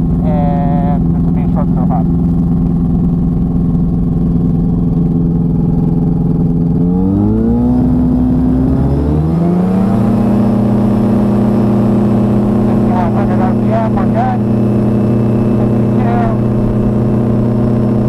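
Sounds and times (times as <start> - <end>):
light aircraft engine revving: 0.0 - 18.0.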